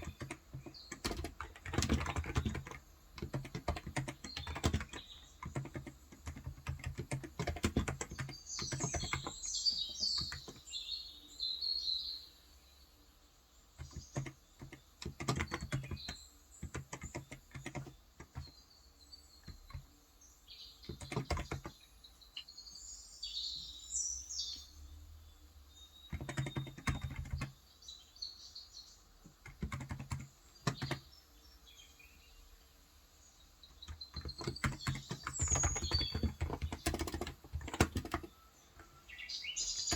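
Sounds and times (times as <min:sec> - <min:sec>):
keyboard key clicks: 0:00.0 - 0:10.6, 0:13.8 - 0:18.5, 0:19.4 - 0:19.9, 0:20.9 - 0:21.8, 0:26.1 - 0:27.5, 0:29.4 - 0:31.0, 0:33.8 - 0:39.0
birds chirping: 0:00.0 - 0:39.9.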